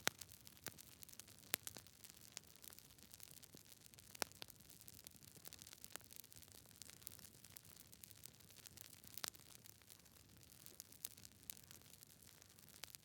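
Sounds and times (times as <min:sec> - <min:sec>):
campfire wood crackling and popping: 0:00.0 - 0:13.0.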